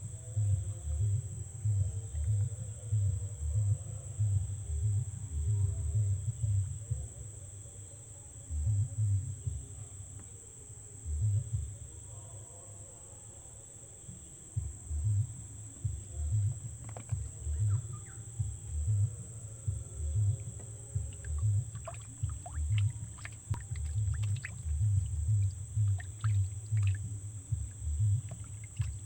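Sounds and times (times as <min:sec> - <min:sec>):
insects droning: 0:00.0 - 0:29.0
low rumbling thumps: 0:14.6 - 0:29.0.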